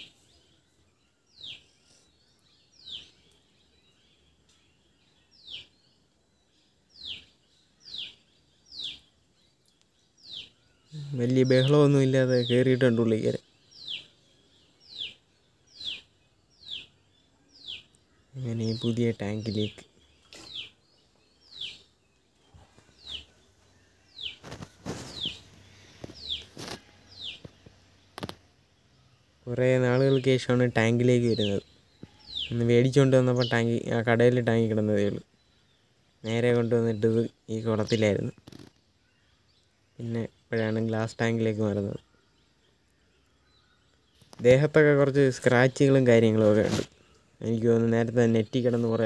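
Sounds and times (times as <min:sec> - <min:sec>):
bird calling: 0:07.0 - 0:37.0.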